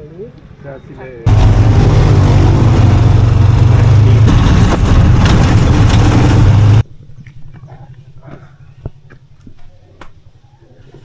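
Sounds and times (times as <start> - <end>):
vehicle engine rumbling: 1.3 - 6.8.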